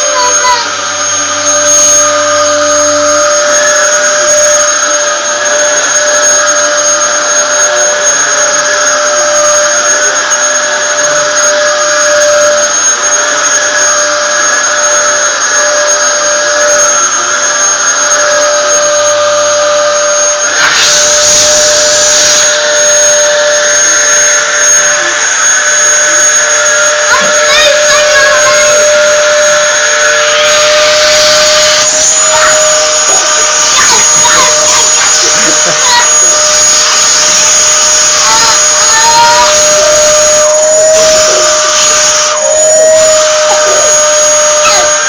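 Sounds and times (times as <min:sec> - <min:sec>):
vacuum cleaner running: 0:00.0 - 0:45.0.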